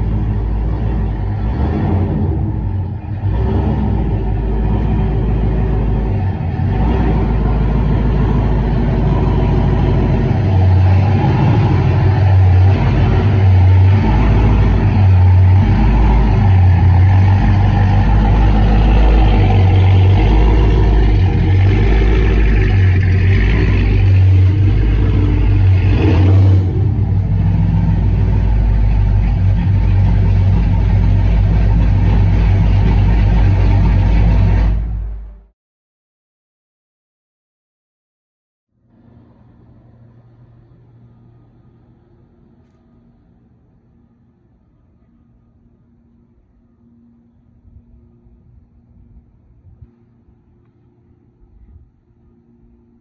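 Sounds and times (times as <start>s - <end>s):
truck engine running unevenly: 0.0s - 35.5s.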